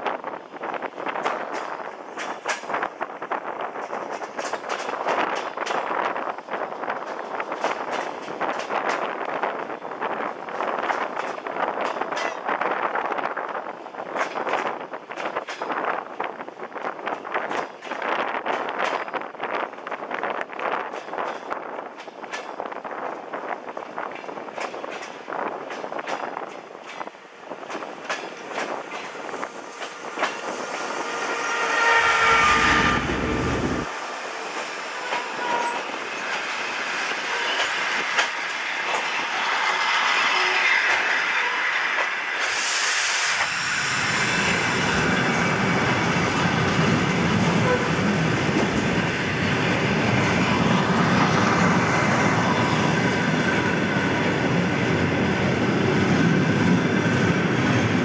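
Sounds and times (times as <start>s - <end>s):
train rumbling and clacking: 0.0s - 58.0s
train horn: 29.0s - 34.0s, 34.9s - 36.0s, 37.3s - 37.7s, 47.6s - 48.2s
air hiss: 42.4s - 45.1s.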